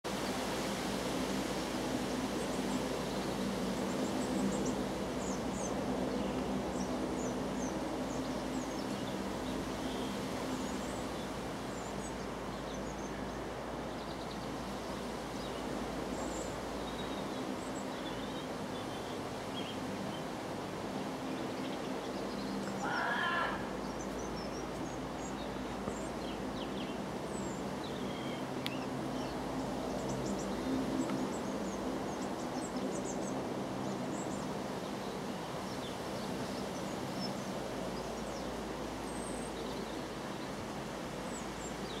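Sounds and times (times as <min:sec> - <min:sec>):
wavering cry: 0:22.8 - 0:23.7
short high bird calls: 0:22.8 - 0:23.8.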